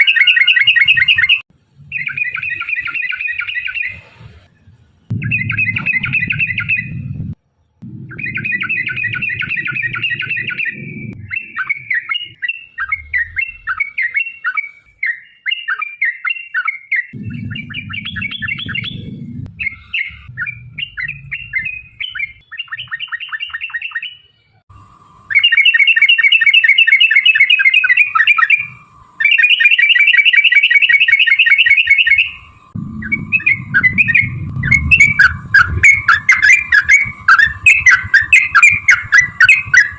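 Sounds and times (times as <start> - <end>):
bulbuls singing rapid chatters: 0.0 - 4.2, 8.2 - 24.2, 25.3 - 39.9
low rumbling: 3.8 - 14.0, 17.2 - 22.9, 32.2 - 39.9
steady mid-pitched tone: 17.2 - 22.4, 31.5 - 39.9.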